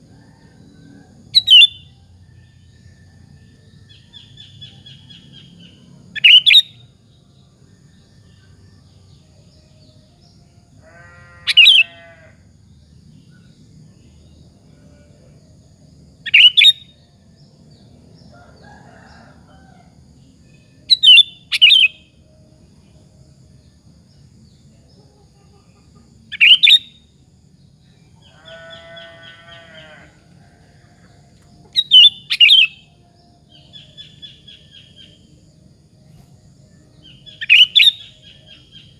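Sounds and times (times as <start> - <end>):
harsh buzzy bird call: 10.9 - 12.3
faint low hum: 12.0 - 26.3.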